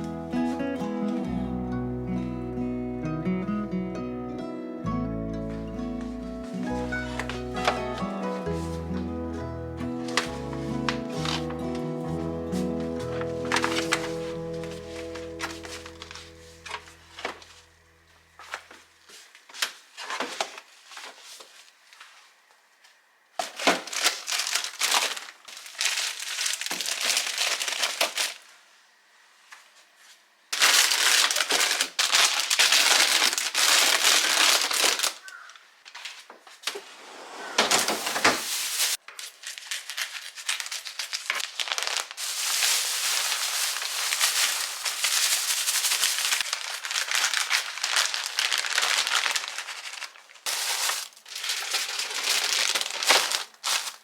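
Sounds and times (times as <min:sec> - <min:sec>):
plastic bags crinkling: 0:10.0 - 0:17.7, 0:23.4 - 0:28.5, 0:30.6 - 0:36.3, 0:38.1 - 0:54.0.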